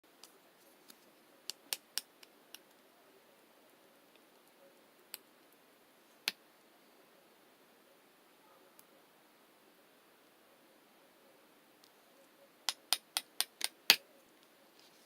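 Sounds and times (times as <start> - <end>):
faint hiss: 0.1 - 15.0.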